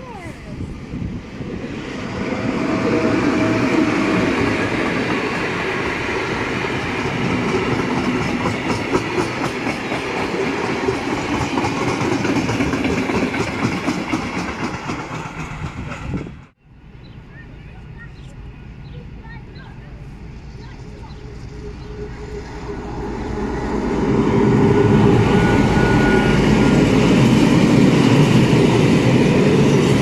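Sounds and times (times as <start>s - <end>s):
freight train rolling past: 0.0s - 30.0s
wheels clickety-clack on rail joints: 3.4s - 30.0s.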